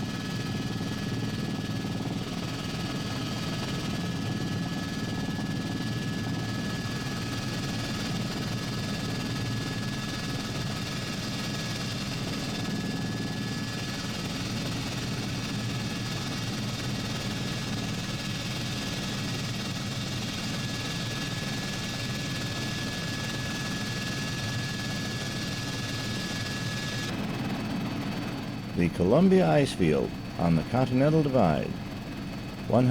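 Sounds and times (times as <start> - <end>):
helicopter engine and rotor drone: 0.0 - 32.9
faint high whine: 28.8 - 32.9.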